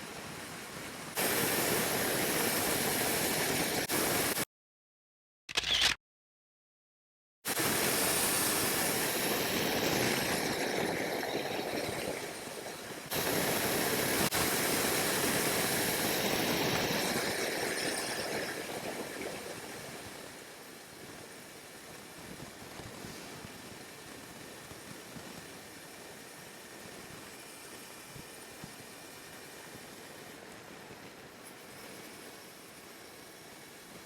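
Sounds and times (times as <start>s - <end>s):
wind and road noise: 7.5s - 34.0s.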